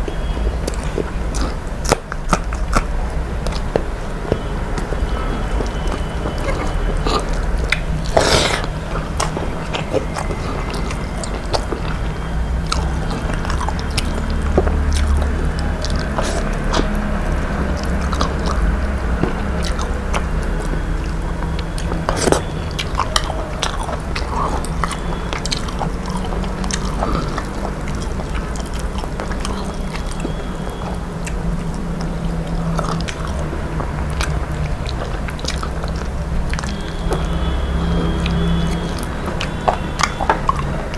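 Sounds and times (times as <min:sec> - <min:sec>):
person chewing and biting: 0:00.0 - 0:40.9
steady low hum: 0:00.0 - 0:40.9.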